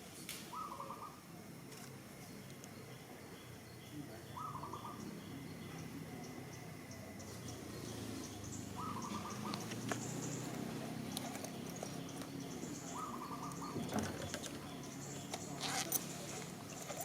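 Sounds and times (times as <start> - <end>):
pulsing animal calls: 8.4 - 10.9, 12.5 - 13.8.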